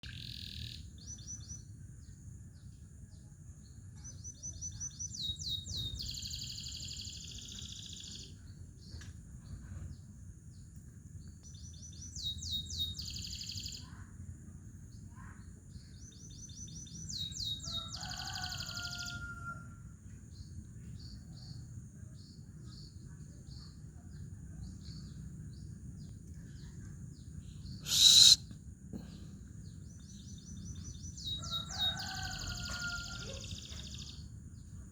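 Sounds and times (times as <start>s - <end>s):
canary singing in trills: 11.6s - 13.9s, 16.0s - 19.6s, 27.7s - 28.4s, 29.9s - 34.2s.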